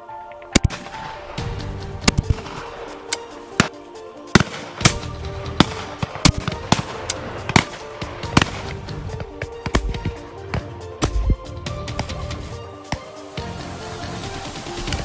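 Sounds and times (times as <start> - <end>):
background music with held notes: 0.0 - 15.0
shotguns firing: 0.5 - 11.4.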